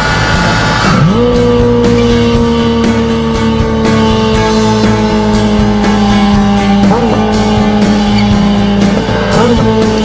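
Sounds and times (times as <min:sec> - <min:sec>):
motorcycle engine revving high: 0:00.0 - 0:10.0
rock music with drum beat: 0:00.0 - 0:10.0.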